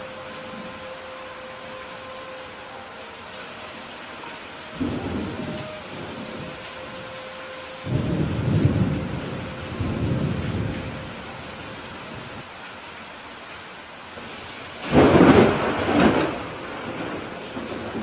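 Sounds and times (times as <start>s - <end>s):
steady rain falling: 0.0s - 18.0s
low thunder rumbles: 4.8s - 7.0s, 7.8s - 12.4s, 14.8s - 18.0s
loud thunderclap: 14.8s - 18.0s.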